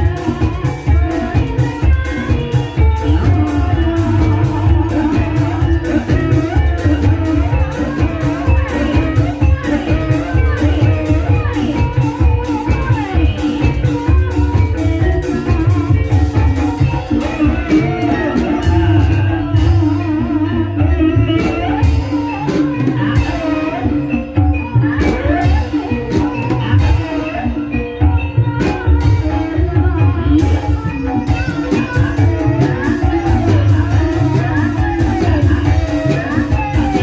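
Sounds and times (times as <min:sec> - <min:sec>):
gamelan music: 0:00.0 - 0:37.0.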